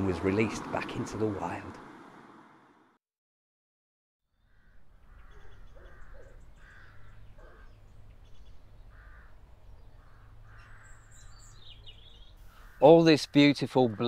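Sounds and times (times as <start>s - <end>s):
crows cawing: 4.4s - 7.8s, 8.9s - 11.6s, 12.4s - 14.0s.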